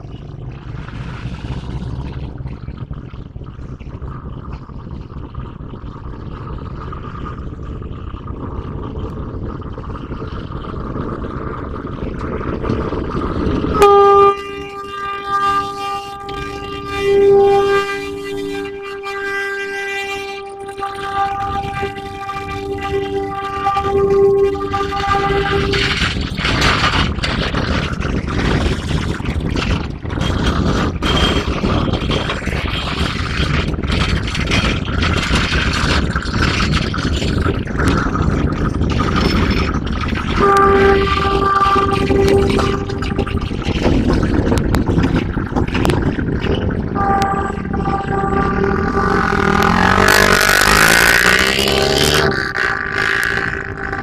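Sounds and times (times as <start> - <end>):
locomotive engine running: 0.0 - 54.0
running-gear clanking: 0.0 - 54.0
train air horn blast: 13.8 - 26.1, 40.4 - 43.7, 47.0 - 54.0.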